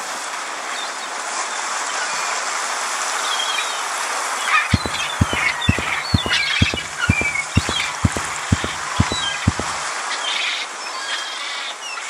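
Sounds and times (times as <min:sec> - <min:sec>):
low regular thudding: 0:04.8 - 0:09.9.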